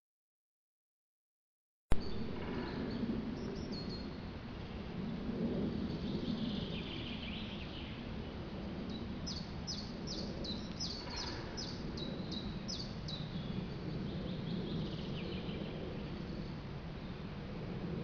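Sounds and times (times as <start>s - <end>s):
songbird singing: 1.9s - 4.3s, 5.0s - 17.4s
faint bird calls: 2.0s - 4.2s, 8.9s - 16.5s.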